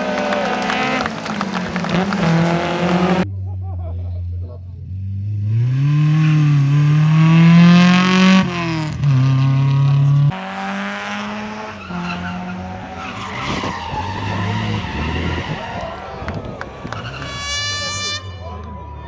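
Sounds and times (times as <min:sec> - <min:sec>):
tyres on gravel: 0:00.0 - 0:03.2
rally car engine revving: 0:00.0 - 0:19.0.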